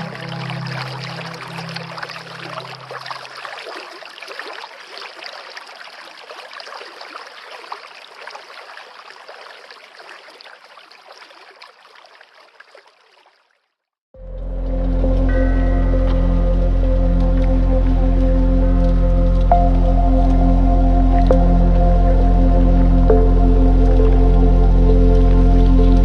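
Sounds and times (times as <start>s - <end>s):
background music: 0.0s - 2.6s, 14.2s - 26.0s
river water rushing: 0.0s - 6.1s.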